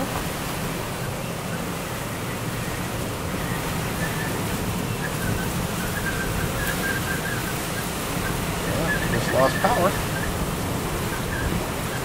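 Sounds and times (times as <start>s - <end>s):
rain: 0.0s - 12.0s
storm wind: 0.0s - 12.0s.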